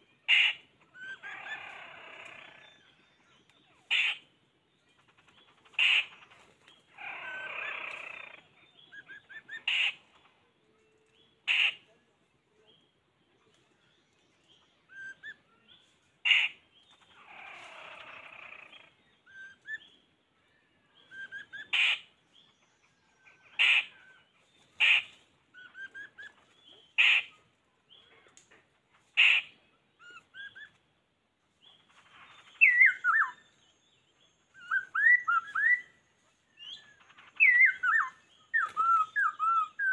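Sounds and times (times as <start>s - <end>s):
soft bird chirps: 0.0s - 39.9s
short sharp bird calls: 3.7s - 4.3s, 5.2s - 10.4s, 11.0s - 12.0s, 14.9s - 20.0s, 20.9s - 22.2s, 23.1s - 30.9s
harsh rasping bird call: 5.7s - 6.2s, 11.5s - 11.8s, 21.4s - 22.1s, 23.5s - 24.1s.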